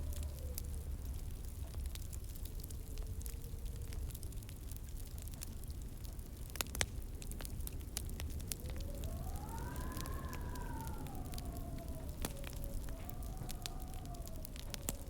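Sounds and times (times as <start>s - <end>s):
wood fire crackling and popping: 0.0s - 15.0s
faint whistling tone: 8.4s - 15.0s.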